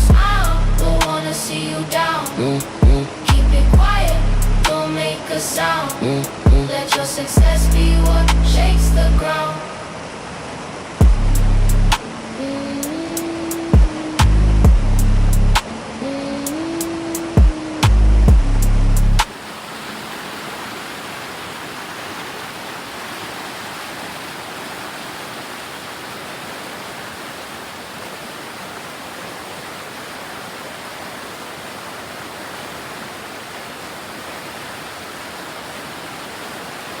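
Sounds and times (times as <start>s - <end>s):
music: 0.0s - 9.2s, 11.0s - 12.0s, 12.8s - 15.7s, 16.4s - 19.3s
rush of falling water: 0.0s - 18.3s, 18.9s - 37.0s.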